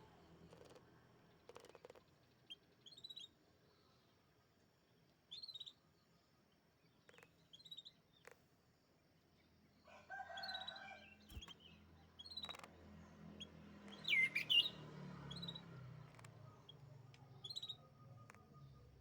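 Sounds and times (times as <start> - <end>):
canary chirping and trilling: 10.3 - 19.0.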